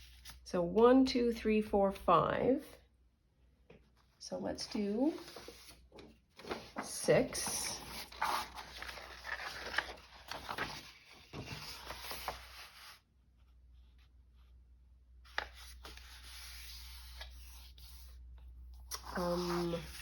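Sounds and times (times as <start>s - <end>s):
paper rustling: 5.0s - 13.0s.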